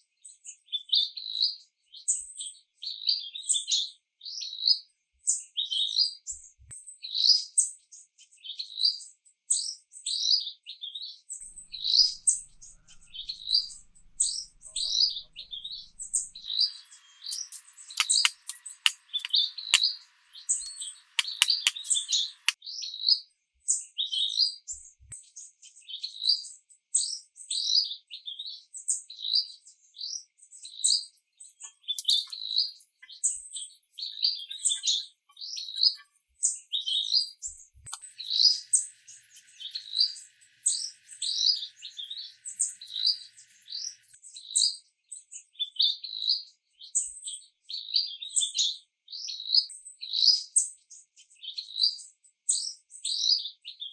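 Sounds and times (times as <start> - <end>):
birds chirping: 11.4 - 22.6, 31.4 - 44.1
sharp clicks: 15.7 - 22.6, 32.0 - 44.1.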